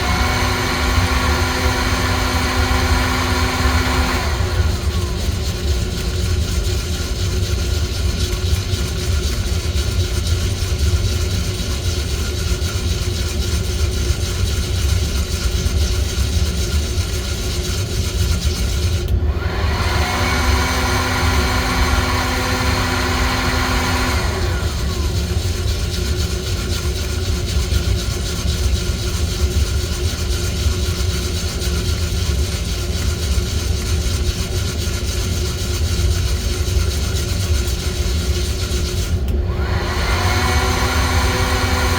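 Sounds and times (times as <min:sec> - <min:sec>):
electric motor whine: 0:00.0 - 0:05.6, 0:19.3 - 0:25.3, 0:39.5 - 0:41.9
roasting machine drone: 0:00.0 - 0:09.3, 0:18.6 - 0:30.2.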